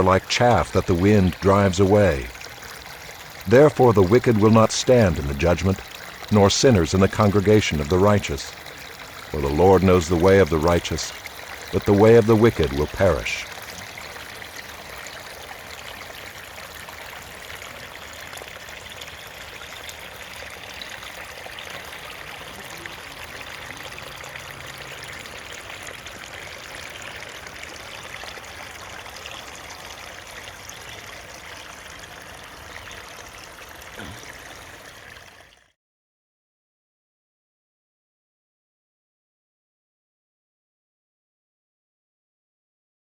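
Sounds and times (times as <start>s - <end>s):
stream babbling and trickling: 0.0s - 35.8s.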